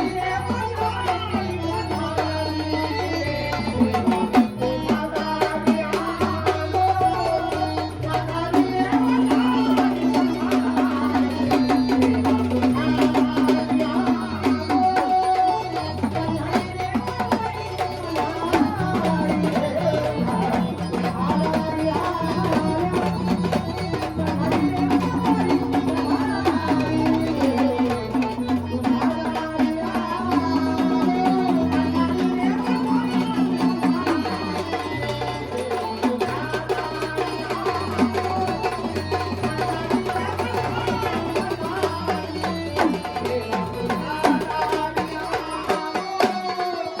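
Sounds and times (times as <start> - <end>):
wavering melody line: 0.0 - 45.8
hand drums playing a steady beat: 0.0 - 47.0.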